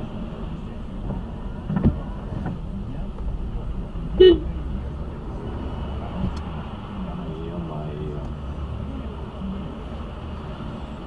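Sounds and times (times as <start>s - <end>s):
car engine and road noise: 0.0s - 11.0s
car horn toot: 4.2s - 4.5s.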